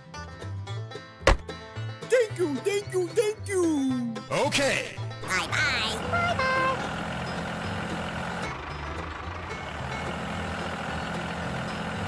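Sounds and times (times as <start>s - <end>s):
vehicle engine humming: 5.0s - 12.0s.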